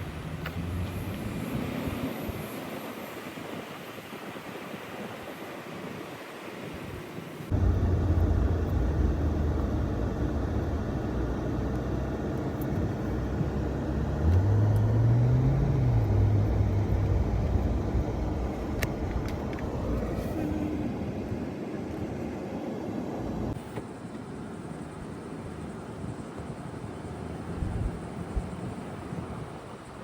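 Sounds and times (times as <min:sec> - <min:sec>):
car engine hum: 0:00.0 - 0:02.4, 0:07.5 - 0:21.4
road noise: 0:00.0 - 0:05.0, 0:06.0 - 0:30.0.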